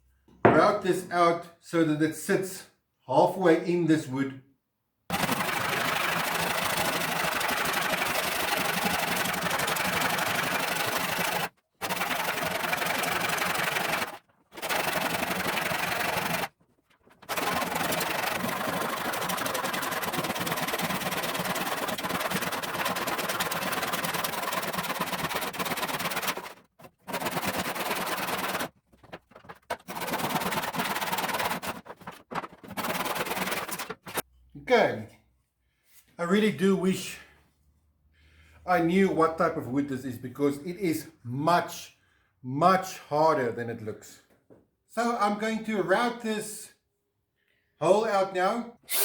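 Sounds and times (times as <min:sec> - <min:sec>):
saw cutting hard wood: 0:05.1 - 0:16.6, 0:17.2 - 0:28.7, 0:29.4 - 0:34.2.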